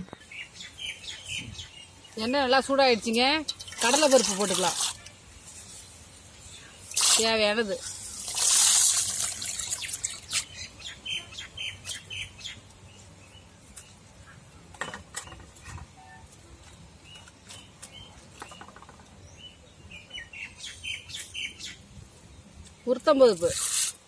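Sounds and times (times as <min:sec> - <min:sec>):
small birds chirping: 0:00.0 - 0:23.8
lentils crackling in hot oil: 0:03.1 - 0:06.0, 0:06.8 - 0:10.5.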